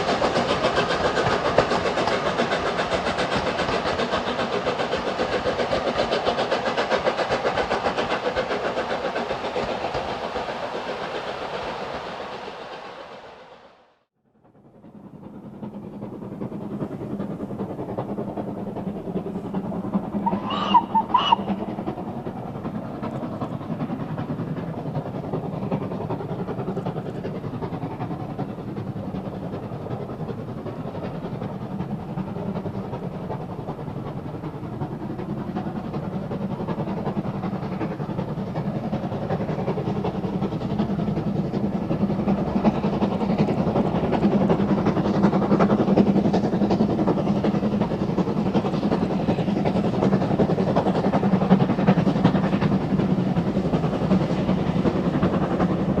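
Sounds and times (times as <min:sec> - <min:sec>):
steam locomotive working: 0:00.0 - 0:56.0
steam train whistle blasts: 0:20.2 - 0:21.5.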